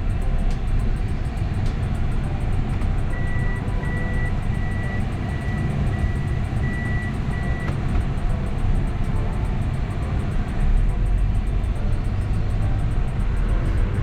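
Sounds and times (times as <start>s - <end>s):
background music: 0.0s - 14.0s
engine and road rumble: 0.0s - 14.0s
short high beeps: 3.1s - 7.8s.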